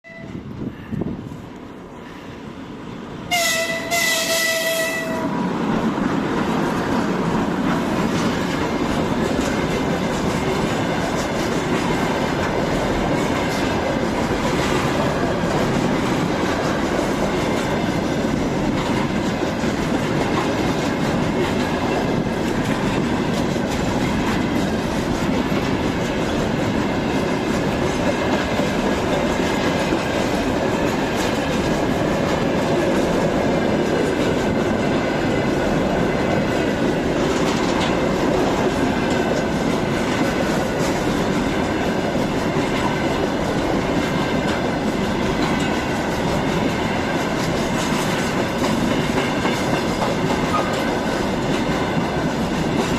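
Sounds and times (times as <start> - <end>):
locomotive horn: 0.0 - 0.5, 3.3 - 5.4
freight train rumbling past: 0.0 - 52.9
wagon wheels clattering on rails: 6.4 - 52.9.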